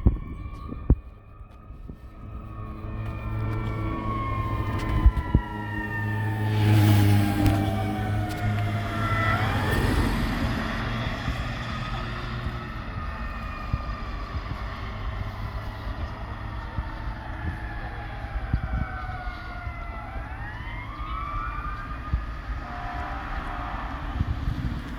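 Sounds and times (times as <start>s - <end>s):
low rumble: 0.0s - 17.1s
fire engine siren wailing: 0.0s - 24.9s.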